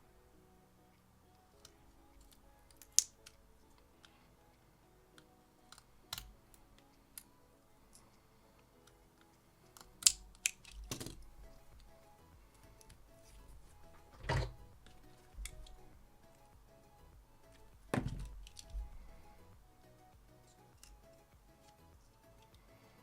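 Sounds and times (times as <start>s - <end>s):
faint background music: 0.0s - 23.0s
small tools clicking and tapping: 1.6s - 4.2s, 8.8s - 11.9s, 12.5s - 15.8s, 17.5s - 18.9s, 20.8s - 21.8s.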